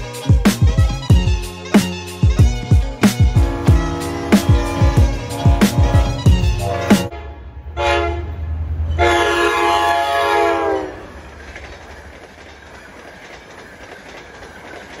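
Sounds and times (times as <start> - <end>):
coaches rolling over rails: 0.0 - 7.7, 8.3 - 15.0
locomotive rumble: 0.0 - 15.0
train horn blasts: 3.3 - 11.1.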